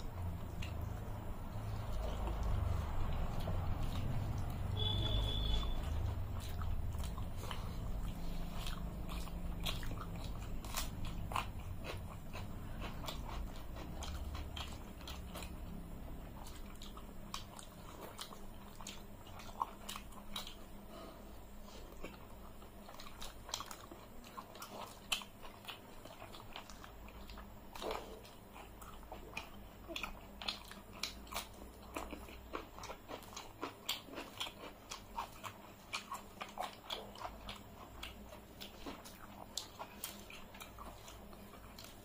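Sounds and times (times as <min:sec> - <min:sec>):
people chewing crunchy food: 0:00.0 - 0:42.0.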